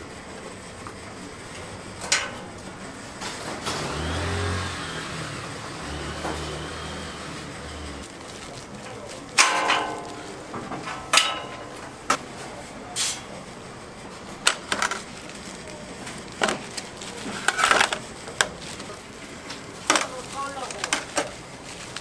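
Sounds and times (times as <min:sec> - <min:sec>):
kitchen knocks and clicks: 0:09.4 - 0:12.2.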